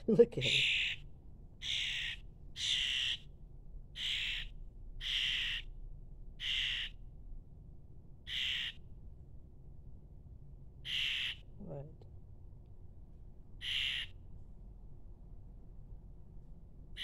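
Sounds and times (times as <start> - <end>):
bird harsh raspy calls: 0.0 - 3.3, 3.9 - 5.8, 6.4 - 7.0, 8.2 - 8.8, 10.8 - 11.6, 13.6 - 14.2.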